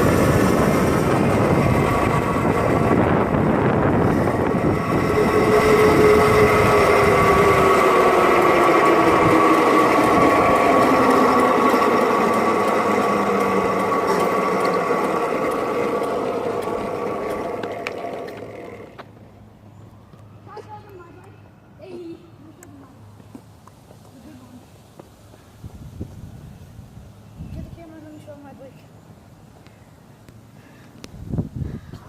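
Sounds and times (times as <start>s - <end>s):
electric motor whining: 0.0s - 19.1s.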